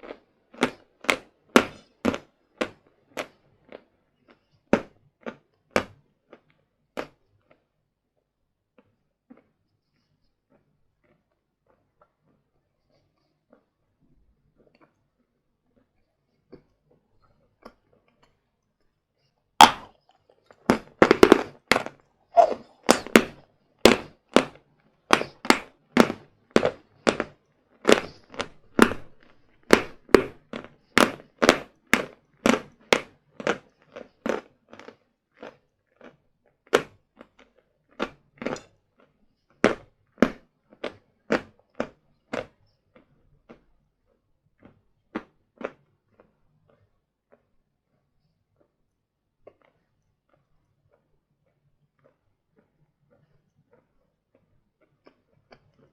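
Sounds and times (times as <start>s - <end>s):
person crunching chalk: 19.6s - 38.6s.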